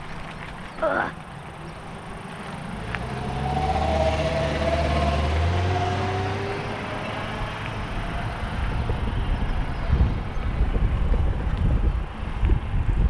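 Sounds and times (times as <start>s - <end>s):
road and wind noise: 0.0s - 13.0s
vehicle passing by: 1.6s - 10.8s.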